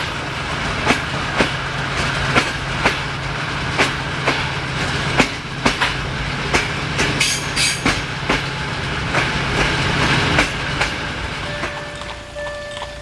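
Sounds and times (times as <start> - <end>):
train low hum: 0.0 - 13.0
train wheels clicking over joints: 0.0 - 13.0
level crossing electronic warning tone: 11.4 - 13.0.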